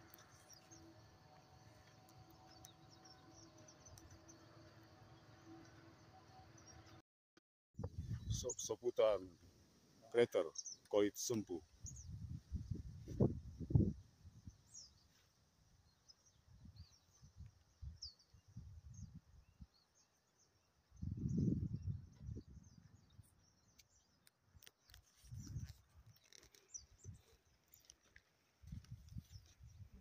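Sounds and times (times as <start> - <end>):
small birds chirping: 10.2 - 15.2, 15.8 - 30.0.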